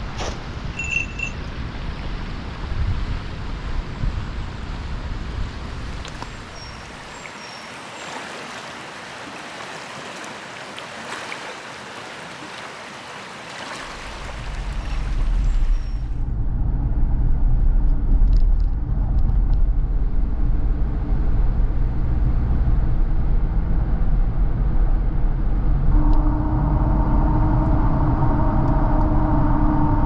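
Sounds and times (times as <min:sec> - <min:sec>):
low rumble: 0:14.7 - 0:30.0
droning hum: 0:25.2 - 0:30.0.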